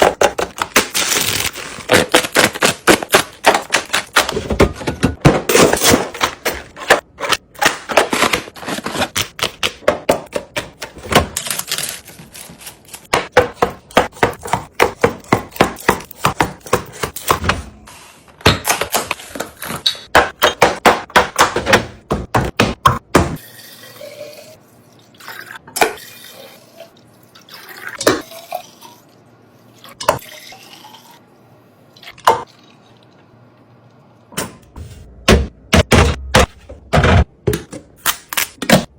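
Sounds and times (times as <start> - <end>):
containers knocking on fridge shelves: 1.9 - 8.5, 13.1 - 17.7, 18.4 - 23.4, 35.2 - 37.9.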